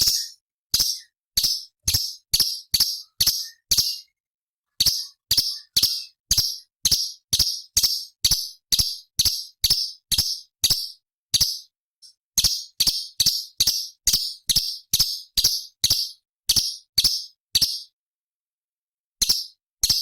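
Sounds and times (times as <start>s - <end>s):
bird calling harsh sharp notes: 0.0s - 8.2s.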